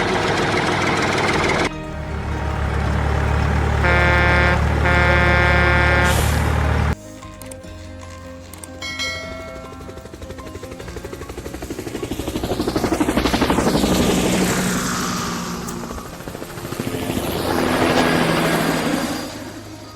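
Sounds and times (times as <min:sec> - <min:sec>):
machine with chopping pulse passing: 0:10.6 - 0:19.9.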